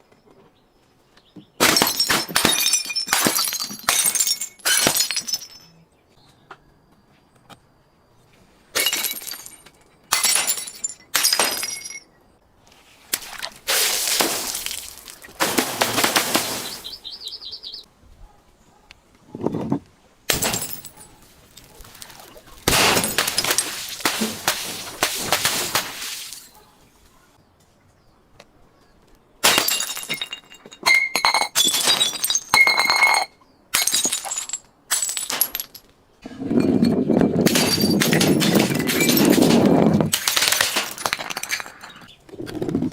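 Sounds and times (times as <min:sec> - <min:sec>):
glass bottles smashing: 0:01.6 - 0:05.8, 0:08.8 - 0:12.1, 0:13.2 - 0:17.0, 0:20.3 - 0:26.6, 0:29.4 - 0:35.8, 0:36.5 - 0:42.1
glass pieces clinking: 0:01.8 - 0:05.8, 0:08.8 - 0:12.1, 0:29.5 - 0:35.8, 0:36.6 - 0:42.1.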